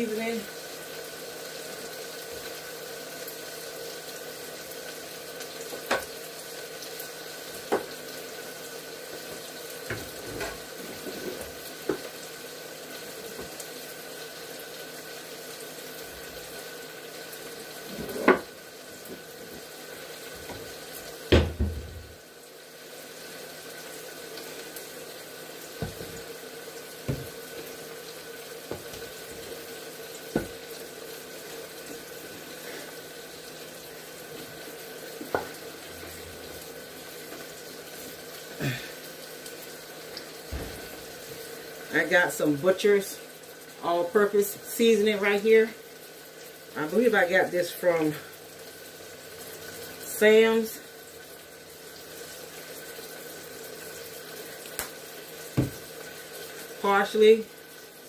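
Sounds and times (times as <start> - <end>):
kitchen items knocking: 21.3 - 22.1.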